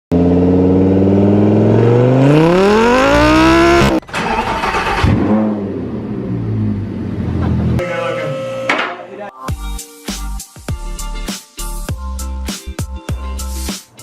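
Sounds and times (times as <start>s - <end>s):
car engine revving: 0.1s - 7.8s.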